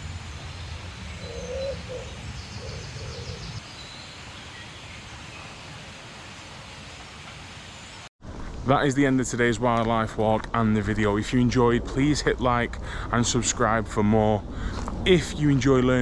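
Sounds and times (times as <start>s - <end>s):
low bird call notes: 0.0s - 5.8s
outdoor background noise: 0.0s - 16.0s.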